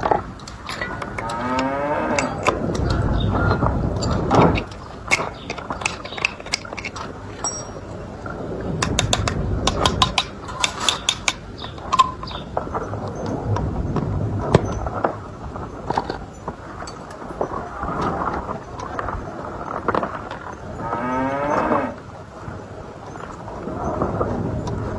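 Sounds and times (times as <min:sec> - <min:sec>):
low background rumble: 0:00.0 - 0:24.9
sharp metallic clicks: 0:08.8 - 0:13.7.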